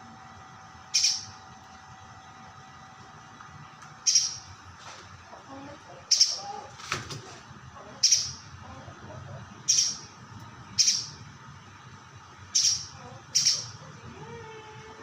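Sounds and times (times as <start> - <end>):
bird high-pitched calls: 0.9 - 1.4, 4.0 - 4.5, 6.1 - 6.5, 8.0 - 8.4, 9.7 - 10.1, 10.8 - 11.2, 12.5 - 13.8.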